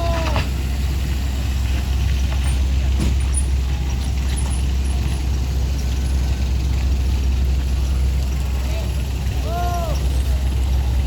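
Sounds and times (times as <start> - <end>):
heavy vehicle engine rumbling: 0.0 - 11.0.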